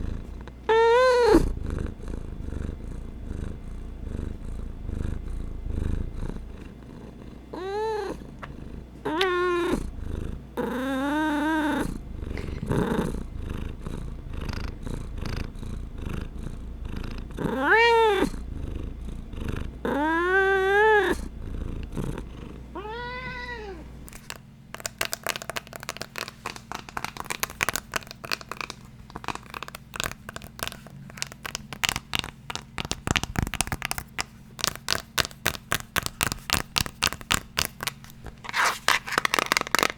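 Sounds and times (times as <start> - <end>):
cat purring: 0.0 - 39.9
cat meowing: 0.7 - 1.5, 9.0 - 9.8, 17.4 - 18.4, 22.7 - 24.1
tapping and scratching on hard object: 24.1 - 39.9.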